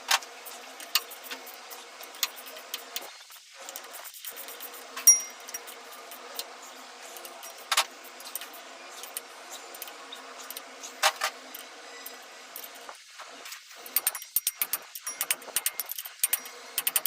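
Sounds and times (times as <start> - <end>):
steady hum: 0.0 - 17.0
metal parts clinking together: 13.9 - 17.0.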